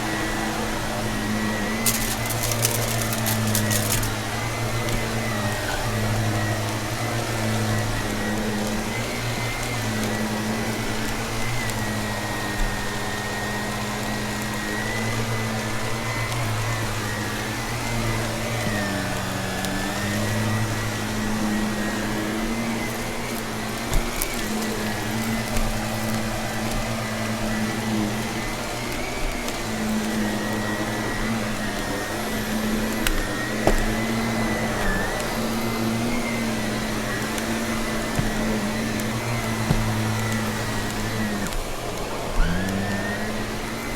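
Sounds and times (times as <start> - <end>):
vacuum cleaner whine: 0.0 - 43.9
debris clicking in vacuum: 0.1 - 12.1.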